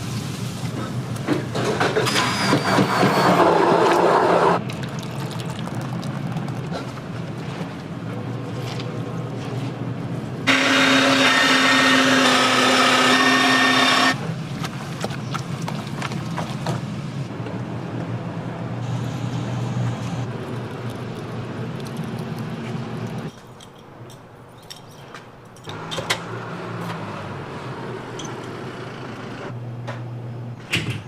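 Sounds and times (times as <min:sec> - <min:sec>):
kitchen appliance motor running: 0:10.5 - 0:14.2.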